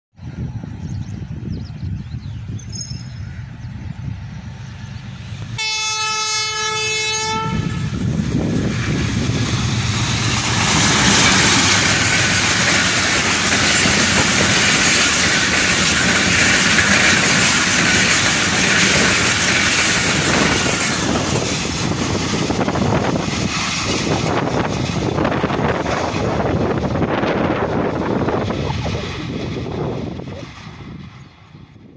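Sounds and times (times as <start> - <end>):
diesel locomotive engine: 0.2 - 31.9
train wheels rushing on rail: 0.2 - 31.9
train horn: 5.6 - 8.0.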